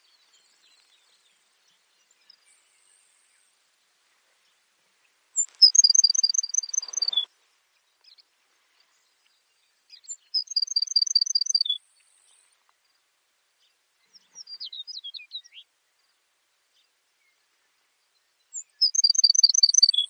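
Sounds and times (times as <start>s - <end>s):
sparrow singing: 5.4s - 7.3s, 8.8s - 12.5s, 18.5s - 20.0s.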